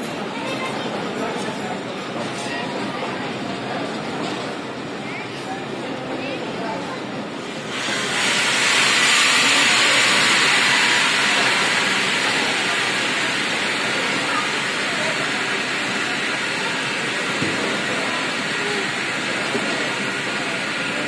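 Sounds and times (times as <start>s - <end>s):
train coaches rolling past: 0.0s - 21.0s
loud steady hiss: 7.2s - 21.0s.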